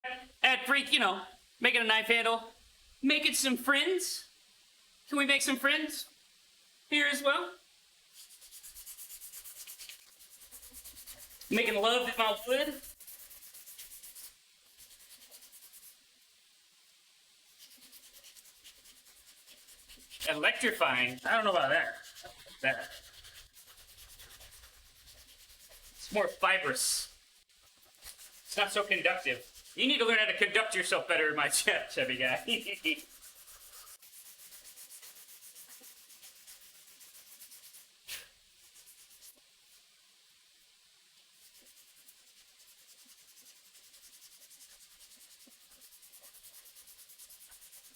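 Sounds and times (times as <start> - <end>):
hand sanding wood: 8.2 - 16.0, 17.5 - 27.1, 27.7 - 30.3, 31.4 - 39.4, 41.3 - 47.9.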